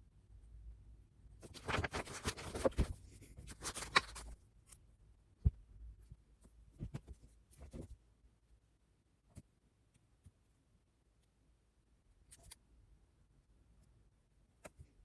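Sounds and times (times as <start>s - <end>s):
rustling and scratching of objects: 1.4s - 4.4s, 6.1s - 8.0s.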